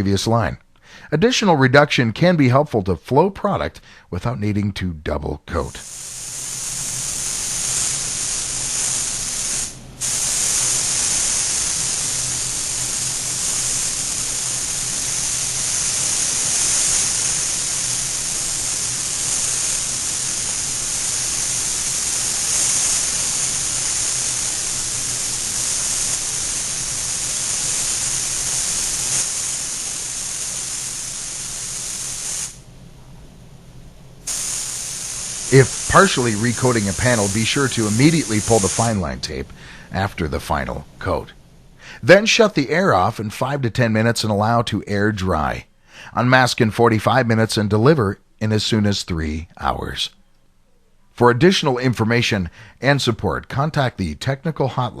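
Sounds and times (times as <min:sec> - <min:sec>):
air spray gun hissing: 0:05.6 - 0:32.7, 0:34.2 - 0:41.2.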